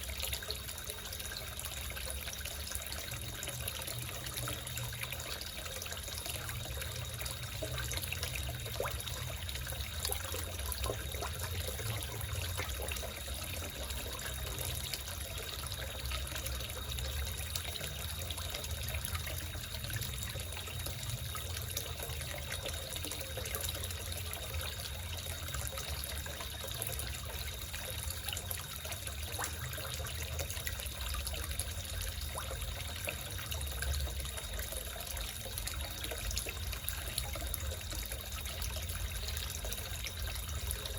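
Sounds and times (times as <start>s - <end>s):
water trickling into pond: 0.0s - 40.9s.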